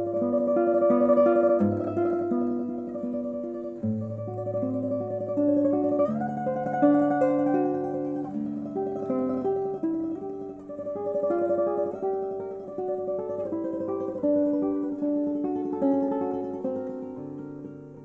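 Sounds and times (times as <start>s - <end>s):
classical guitar tremolo: 0.0s - 18.0s.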